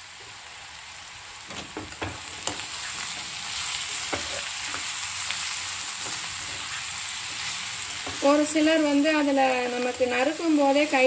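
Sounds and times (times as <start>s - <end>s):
vegetables sizzling in oil: 0.0s - 11.0s
spatula scraping a pan: 2.4s - 8.4s.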